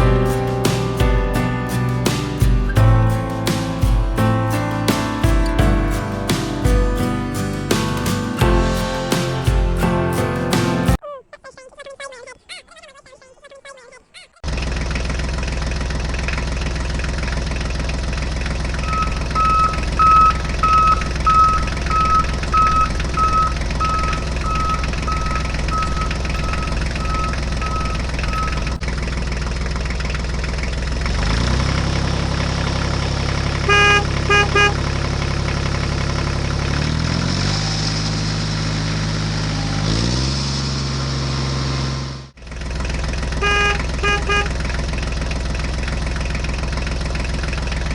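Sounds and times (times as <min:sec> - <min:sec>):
horn toots: 0:18.9 - 0:28.8
reversing beeps: 0:18.9 - 0:28.8
toy tractor engine sound: 0:18.9 - 0:28.8.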